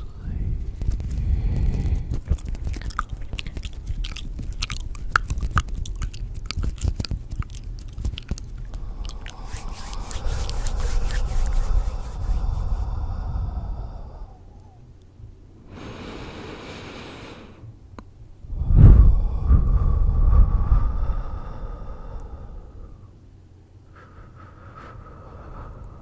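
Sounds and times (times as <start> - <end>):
soft rustling hiss: 0.0 - 13.0.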